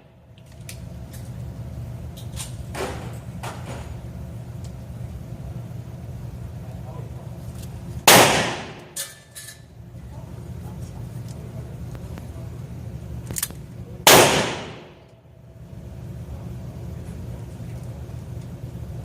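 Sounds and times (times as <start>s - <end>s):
revolver shots echoing: 8.1s - 9.0s, 14.1s - 15.1s.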